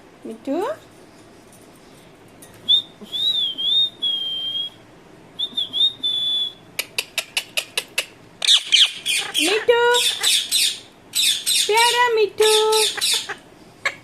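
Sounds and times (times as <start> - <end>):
parrot whistling: 2.7 - 4.8, 5.4 - 6.6, 8.4 - 11.7
parrot chirps: 5.6 - 14.0.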